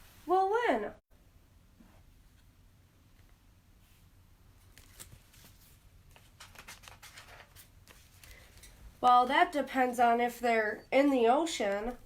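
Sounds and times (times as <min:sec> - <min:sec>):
paper pages rustling and turning: 0:04.6 - 0:08.8.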